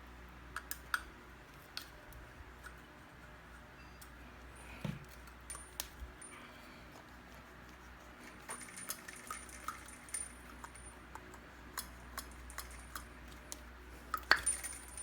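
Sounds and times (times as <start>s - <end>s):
metal parts clinking: 14.2s - 15.0s.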